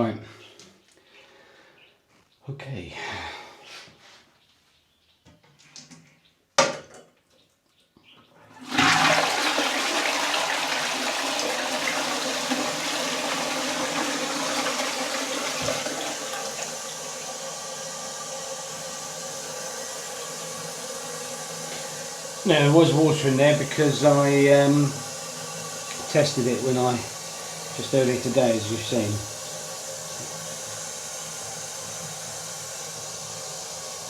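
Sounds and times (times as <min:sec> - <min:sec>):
toilet flushing: 0:08.4 - 0:34.0.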